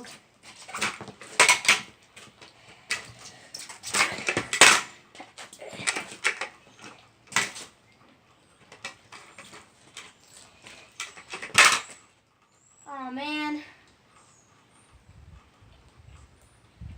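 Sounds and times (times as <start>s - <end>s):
kick scooter clattering on pavement: 0.0s - 7.8s, 8.7s - 12.0s.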